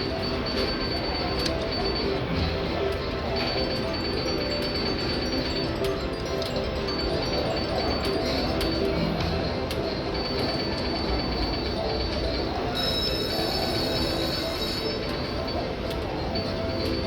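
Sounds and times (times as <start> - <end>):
electronic tones ringing: 0.0 - 17.0
slot machine din: 0.0 - 17.0.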